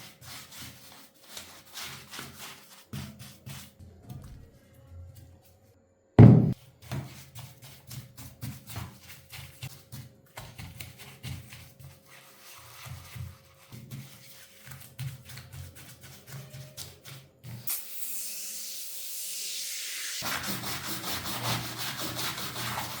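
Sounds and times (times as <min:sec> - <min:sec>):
loud thump: 0:06.2 - 0:06.6.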